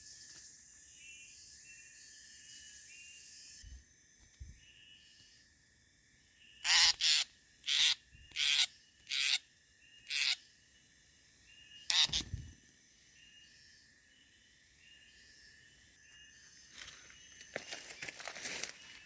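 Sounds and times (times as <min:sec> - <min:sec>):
bird giving harsh calls: 0:06.6 - 0:09.4, 0:10.1 - 0:10.4, 0:11.9 - 0:12.4.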